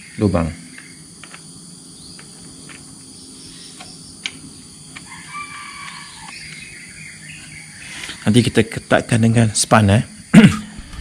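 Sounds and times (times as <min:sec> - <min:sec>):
insects chirring: 0:00.0 - 0:11.0
clicks and taps of handled parts: 0:00.8 - 0:01.4, 0:02.2 - 0:02.8
bird-like chirps: 0:01.9 - 0:08.6.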